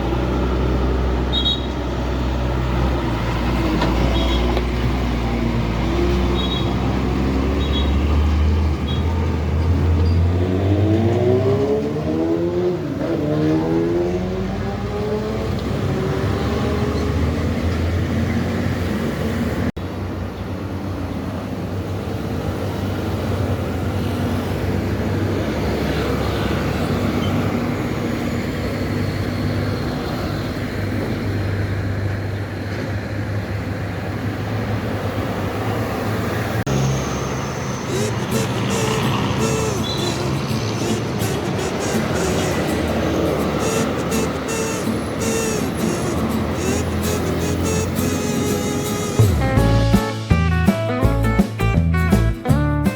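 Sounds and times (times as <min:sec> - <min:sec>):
truck passing: 0:00.0 - 0:52.9
engine drone: 0:36.7 - 0:51.3.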